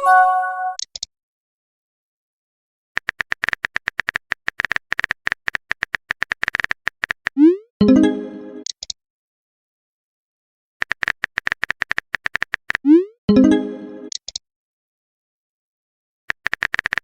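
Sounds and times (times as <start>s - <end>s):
message chime: 0.0s - 0.8s, 7.8s - 8.6s, 13.3s - 14.1s
phone keyboard tapping clicks: 10.8s - 12.8s, 16.3s - 17.0s.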